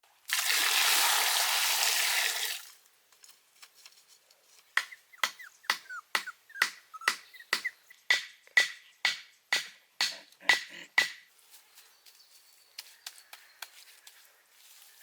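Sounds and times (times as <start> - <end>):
chirping squeaks: 4.8 - 8.0.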